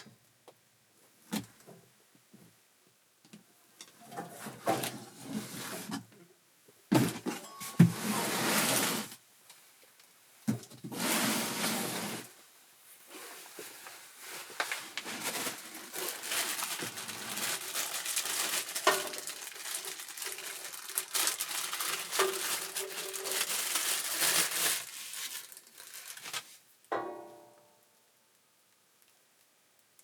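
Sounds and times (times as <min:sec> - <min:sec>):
plastic packaging crinkling: 0:13.4 - 0:26.6.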